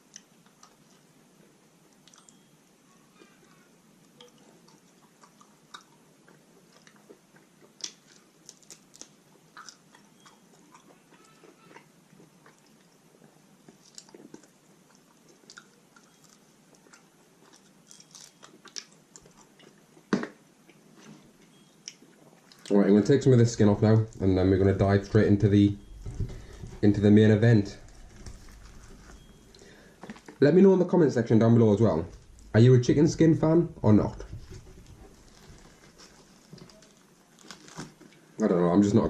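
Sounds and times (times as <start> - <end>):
chewing and biting food: 4.2 - 20.9.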